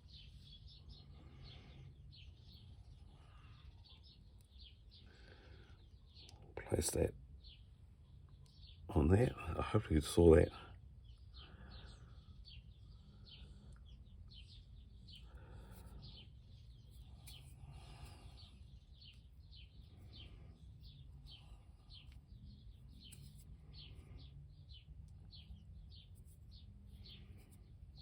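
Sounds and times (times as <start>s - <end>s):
bird chirping: 10.2s - 28.0s.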